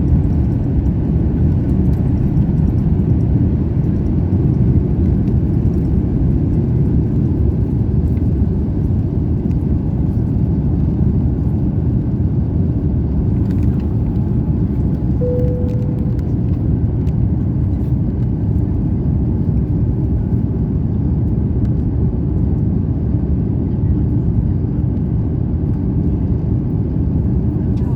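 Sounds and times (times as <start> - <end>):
airliner cabin rumble: 0.0 - 27.9
brief single tone: 15.2 - 16.7.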